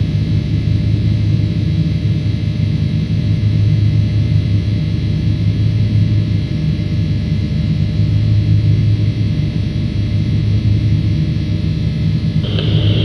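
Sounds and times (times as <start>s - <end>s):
industrial electrical hum: 12.2s - 13.0s.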